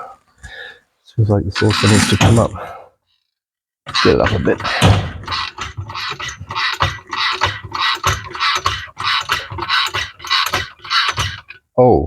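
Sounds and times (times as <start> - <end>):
jack pumping rasping strokes: 1.5 - 2.6, 3.9 - 11.6.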